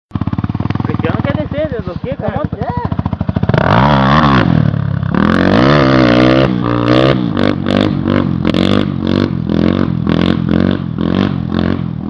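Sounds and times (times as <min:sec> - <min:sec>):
motorcycle engine revving: 0:00.1 - 0:12.0.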